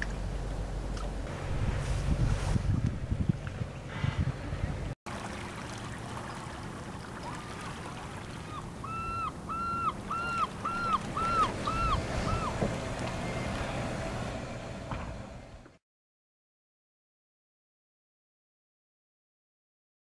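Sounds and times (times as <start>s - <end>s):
low steady hum: 0.0s - 15.8s
bird calling short notes: 8.5s - 12.6s.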